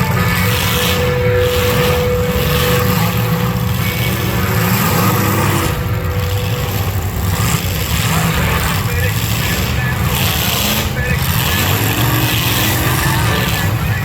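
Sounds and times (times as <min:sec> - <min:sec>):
car engines running roughly: 0:00.0 - 0:14.0.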